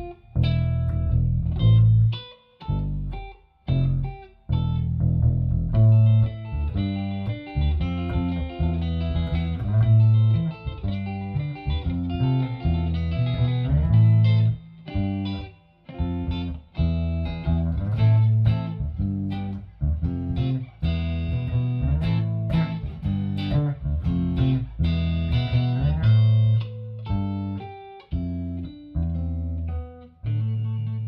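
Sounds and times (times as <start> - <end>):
electric guitar shuffle: 0.0 - 31.0.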